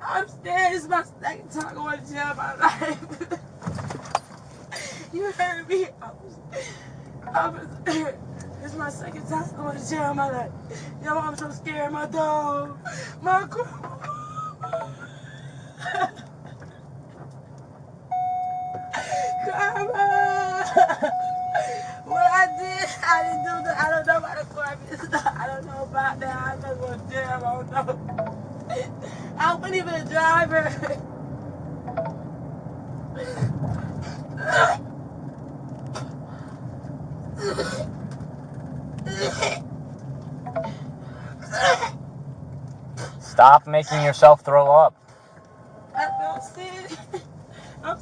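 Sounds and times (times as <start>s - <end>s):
electronic warning tone: 18.1s - 19.6s, 21.1s - 24.0s, 31.9s - 32.2s
person sobbing: 18.8s - 23.9s
woman retching: 39.0s - 39.6s.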